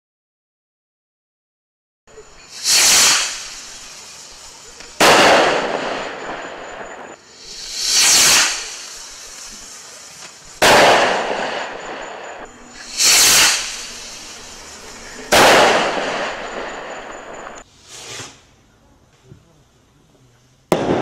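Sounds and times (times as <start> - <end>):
firework hiss: 2.2 - 18.6
firework bang: 2.5 - 17.6, 20.7 - 21.0.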